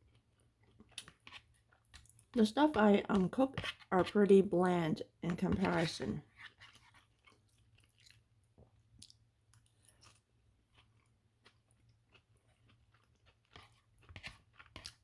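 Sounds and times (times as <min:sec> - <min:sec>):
chewing and mouth clicks: 0:07.0 - 0:15.0.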